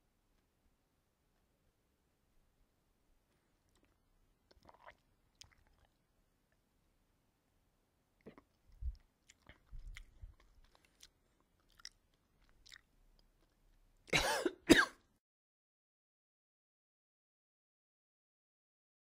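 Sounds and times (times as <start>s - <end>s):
person chewing: 3.6s - 6.0s, 8.2s - 14.1s
person coughing: 14.1s - 15.0s.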